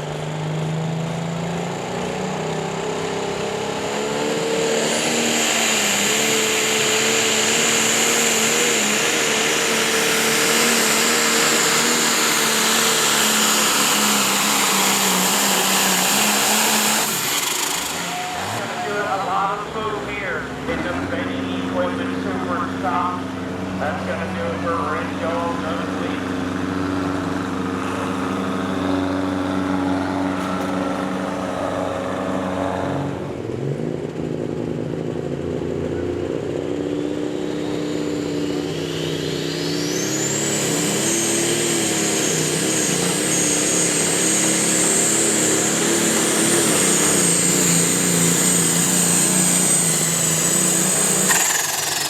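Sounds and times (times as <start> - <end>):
engine running hard: 0.0 - 52.0
high whine: 11.0 - 32.6.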